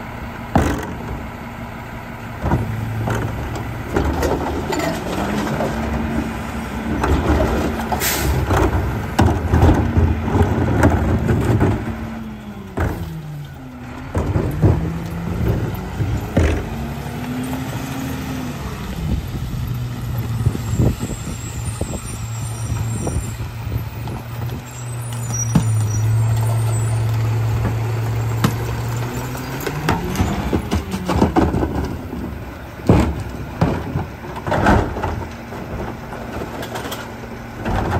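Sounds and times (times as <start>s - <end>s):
diesel engine running: 0.0s - 37.9s
metal and plastic clanks: 2.4s - 6.0s, 29.4s - 37.9s.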